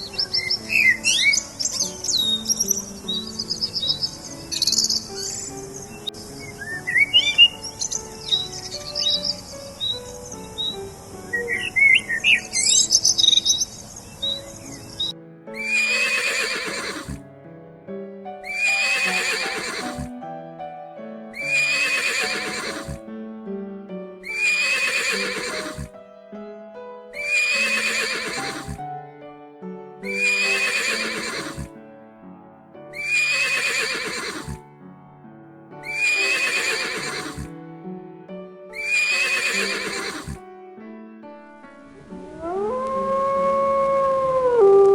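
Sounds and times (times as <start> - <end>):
background music: 0.0 - 13.6, 14.6 - 44.4
loud animal call: 15.6 - 17.2, 18.4 - 20.1, 21.4 - 23.0, 24.3 - 25.9, 27.2 - 28.8, 30.2 - 31.7, 33.0 - 34.6, 35.9 - 37.5, 38.8 - 40.4.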